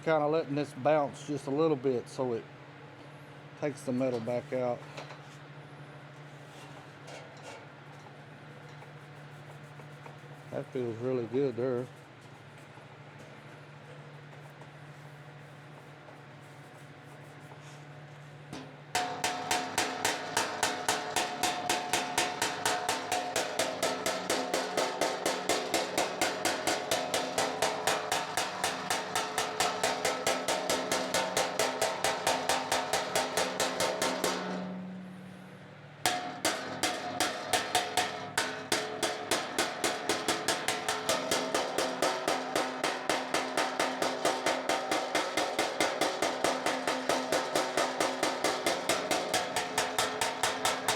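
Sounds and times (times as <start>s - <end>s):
hammer striking sheet metal: 19.0s - 50.9s.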